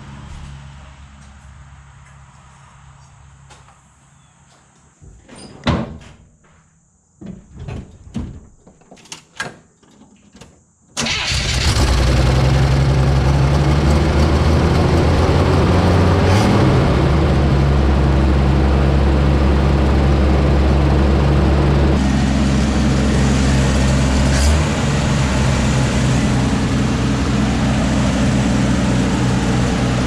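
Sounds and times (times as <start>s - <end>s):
pickup engine starting and idling: 11.0s - 30.0s.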